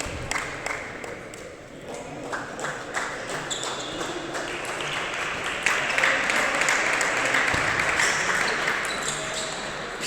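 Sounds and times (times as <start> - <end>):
spectators applauding: 2.2 - 9.4.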